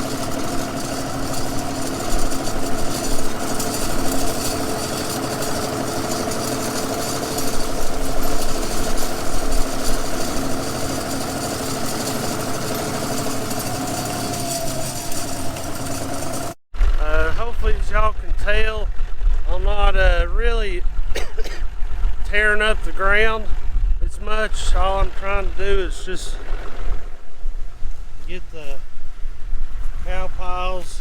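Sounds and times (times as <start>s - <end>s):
tractor engine running: 0.0s - 19.4s
wind buffeting microphone: 0.0s - 31.0s.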